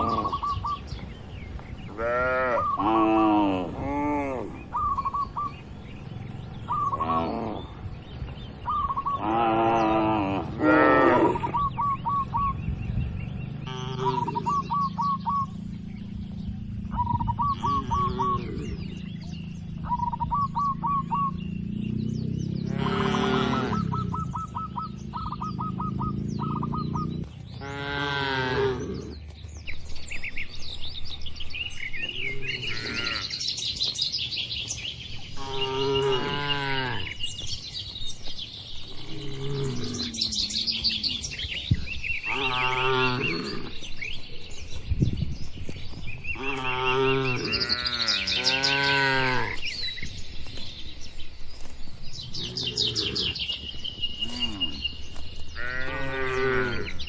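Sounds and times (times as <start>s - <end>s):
cattle mooing: 0.0s - 0.4s, 2.0s - 4.6s, 9.1s - 11.6s, 13.6s - 15.2s, 22.6s - 24.0s, 25.3s - 29.2s, 32.0s - 33.5s, 35.4s - 37.2s, 39.0s - 41.5s, 42.2s - 43.9s, 46.4s - 49.8s, 52.3s - 53.5s, 54.2s - 54.9s, 55.5s - 57.0s
small birds chirping: 0.0s - 57.0s.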